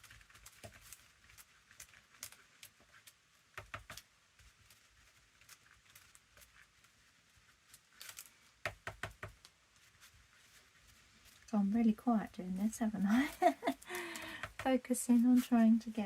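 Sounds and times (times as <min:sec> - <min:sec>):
paper being handled: 0:09.2 - 0:16.0.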